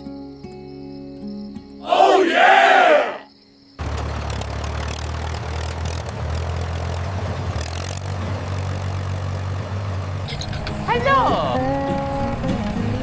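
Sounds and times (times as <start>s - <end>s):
engine running with low hum: 3.8s - 13.0s.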